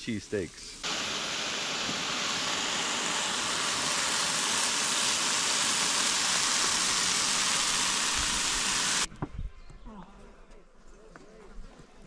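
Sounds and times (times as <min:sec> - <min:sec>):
vegetables sizzling on grill: 0:00.0 - 0:09.1.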